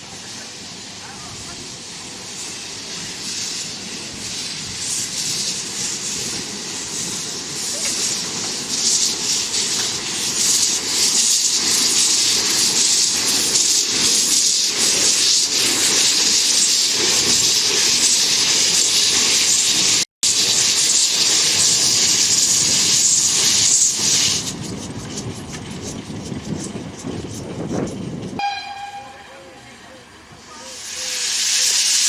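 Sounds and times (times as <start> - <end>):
steam locomotive hissing: 0.0 - 32.0.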